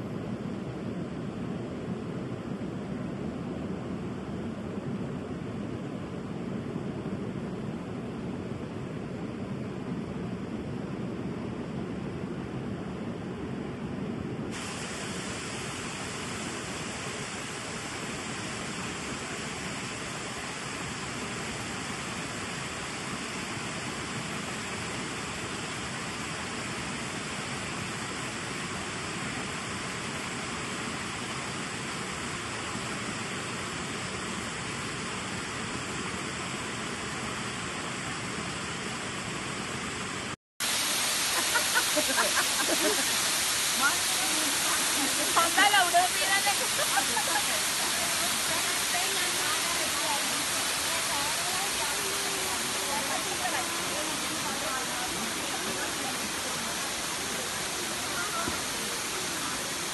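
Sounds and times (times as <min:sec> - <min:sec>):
waterfall roaring: 0:14.5 - 0:59.9.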